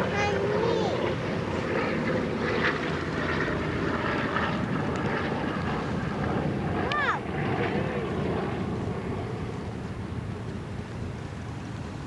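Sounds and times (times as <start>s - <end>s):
airplane engine droning: 0.0s - 12.0s.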